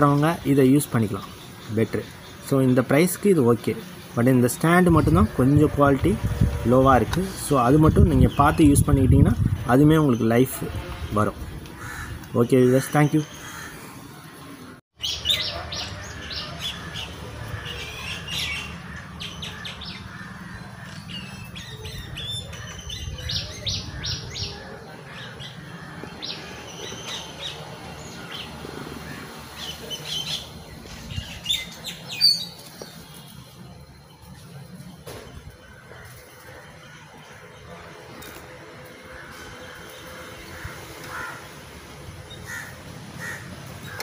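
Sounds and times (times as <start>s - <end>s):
small birds chirping: 0.0s - 5.7s, 7.2s - 38.5s.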